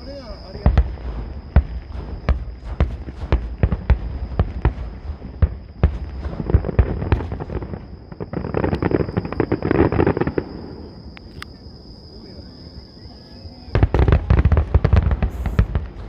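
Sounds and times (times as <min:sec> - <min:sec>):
fireworks bangs: 0:00.0 - 0:11.0, 0:13.7 - 0:16.0
fireworks crackling: 0:00.0 - 0:11.4, 0:13.7 - 0:16.0.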